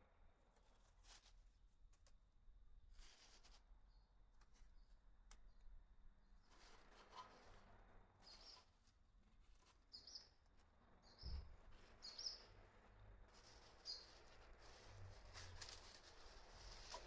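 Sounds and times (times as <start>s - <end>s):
faint high bird chirps: 9.9s - 10.4s, 12.0s - 12.6s, 13.4s - 14.9s.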